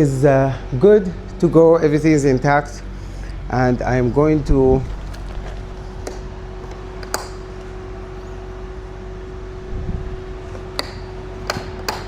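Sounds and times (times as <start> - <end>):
mechanical hum: 0.0 - 12.0
sharp clicks and knocks: 10.8 - 12.0.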